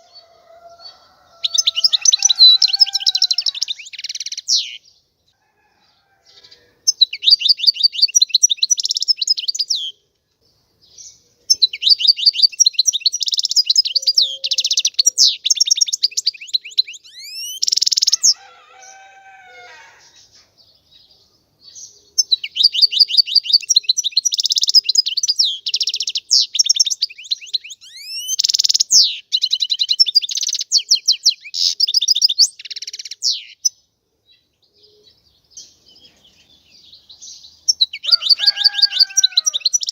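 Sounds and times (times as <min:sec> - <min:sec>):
goldfinch singing: 0:11.0 - 0:18.4, 0:21.7 - 0:33.8, 0:35.6 - 0:39.9.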